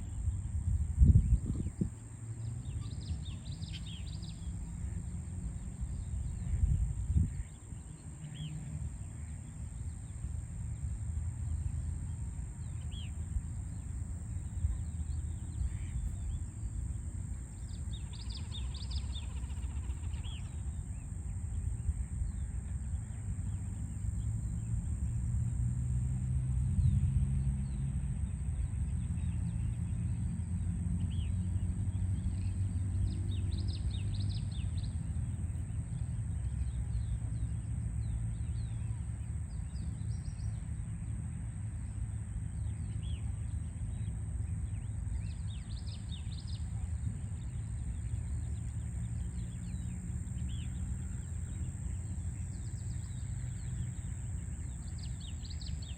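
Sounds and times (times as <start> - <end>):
distant city traffic rumble: 0.0 - 55.9
small birds chirping: 44.7 - 55.9.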